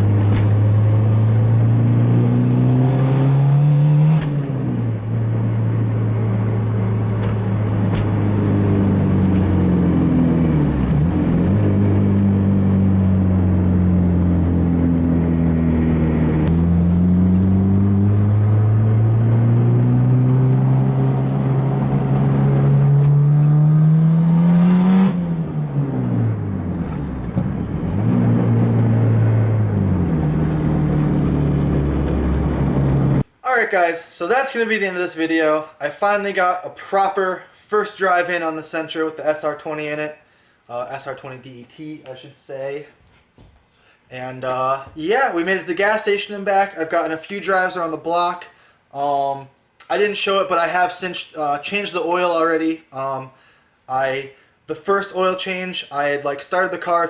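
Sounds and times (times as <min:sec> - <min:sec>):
turbocharged car engine revving: 0:00.0 - 0:33.3.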